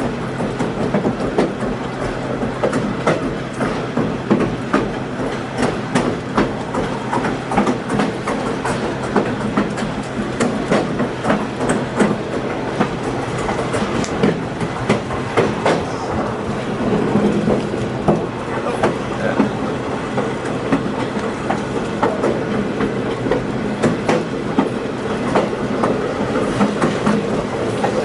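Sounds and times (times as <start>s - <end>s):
rail joint clicks: 0.0s - 28.0s
train wheels rolling on track: 0.0s - 28.0s.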